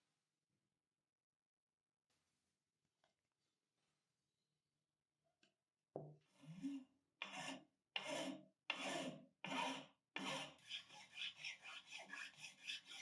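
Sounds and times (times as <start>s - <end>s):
hand file scraping: 6.5s - 13.0s.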